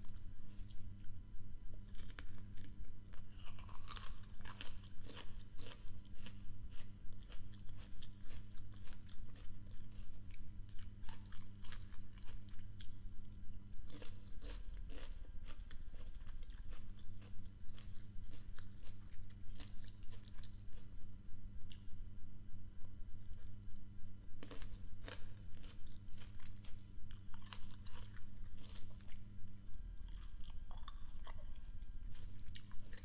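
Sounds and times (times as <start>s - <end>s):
person crunching apple: 1.8s - 12.9s, 13.9s - 20.9s, 23.2s - 29.3s.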